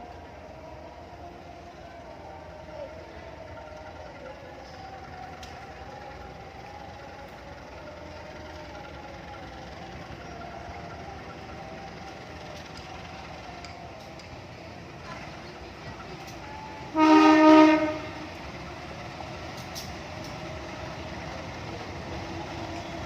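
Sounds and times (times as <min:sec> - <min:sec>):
vehicle engines running: 0:00.0 - 0:23.0.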